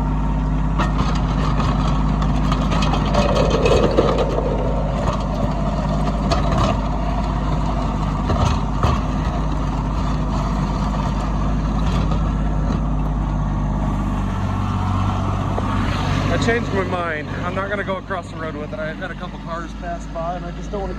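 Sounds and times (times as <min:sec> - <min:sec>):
tractor diesel engine running: 0:00.0 - 0:15.6
knocks and clatter: 0:00.8 - 0:12.8.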